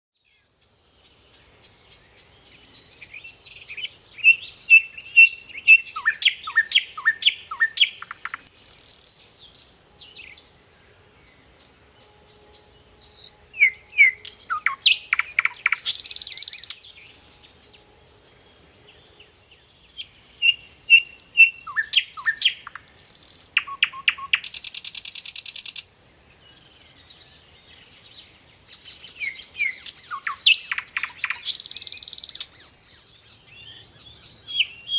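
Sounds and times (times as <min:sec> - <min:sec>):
songbird singing: 0:00.2 - 0:34.9.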